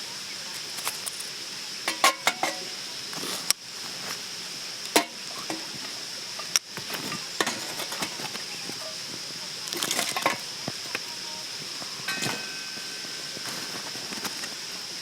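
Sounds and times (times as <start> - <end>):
steady high hiss: 0.0 - 15.0
metal cookware clinking: 0.8 - 2.8, 4.9 - 9.0, 9.6 - 11.1, 11.9 - 14.8.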